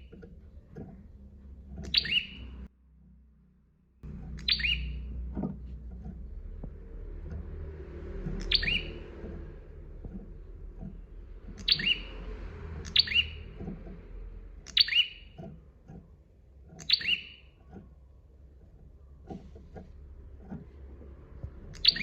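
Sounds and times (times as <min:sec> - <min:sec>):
bird calling descending notes: 0:01.8 - 0:02.6, 0:04.2 - 0:05.2, 0:07.0 - 0:13.8, 0:14.6 - 0:15.3, 0:21.6 - 0:22.0.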